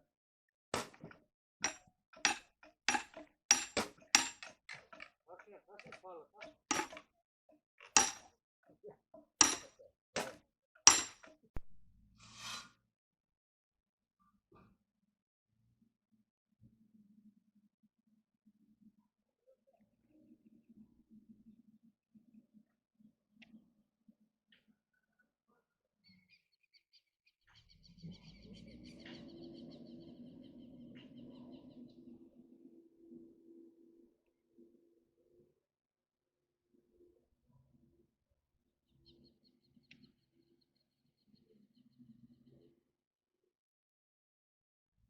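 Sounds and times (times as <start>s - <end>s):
sharp knocks or clinks: 0.8s - 5.1s, 6.7s - 7.0s, 7.9s - 8.3s, 9.4s - 11.7s.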